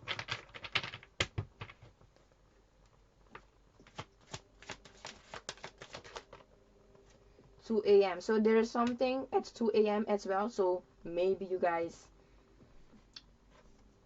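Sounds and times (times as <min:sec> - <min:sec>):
cards shuffled by hand: 0:03.8 - 0:06.4.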